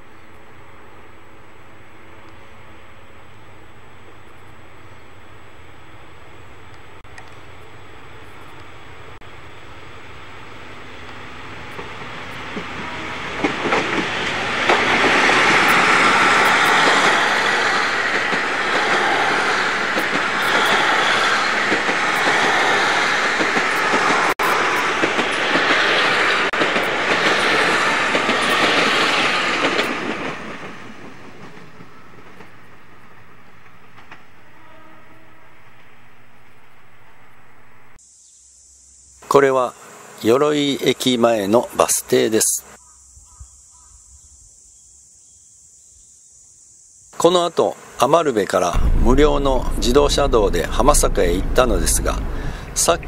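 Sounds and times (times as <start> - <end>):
diesel train passing: 0.0 - 38.0, 48.7 - 53.0.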